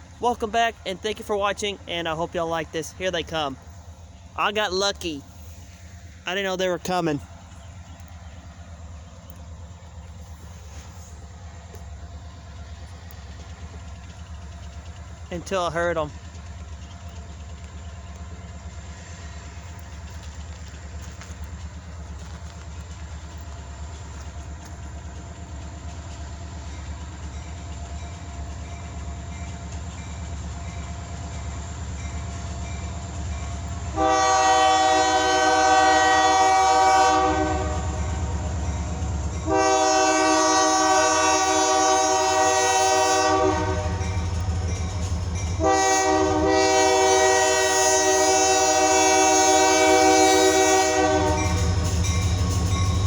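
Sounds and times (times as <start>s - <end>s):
diesel locomotive engine rumble: 0.0s - 53.0s
locomotive horn blasts: 33.9s - 38.2s, 39.4s - 44.1s, 45.6s - 51.9s.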